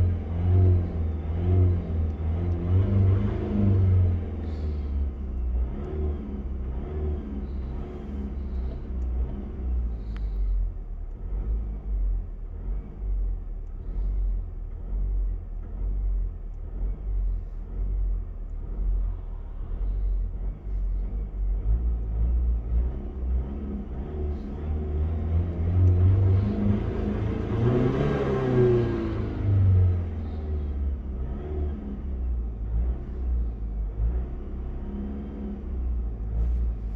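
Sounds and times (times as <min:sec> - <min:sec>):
car engine revving: 0:00.0 - 0:10.4, 0:11.1 - 0:36.9.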